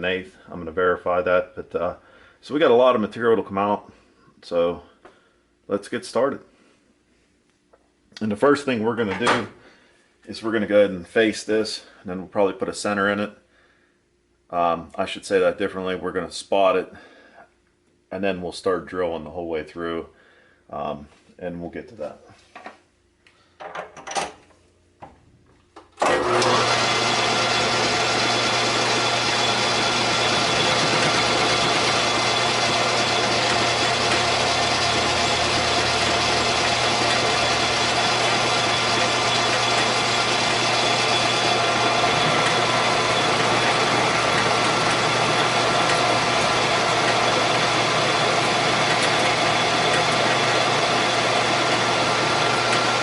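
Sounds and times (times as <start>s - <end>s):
metal lathe motor humming: 26.0s - 53.0s.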